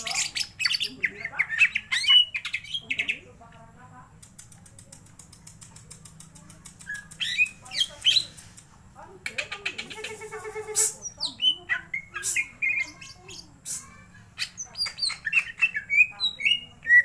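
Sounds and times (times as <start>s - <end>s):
bird singing: 0.0s - 3.3s, 6.8s - 8.4s, 9.2s - 17.0s.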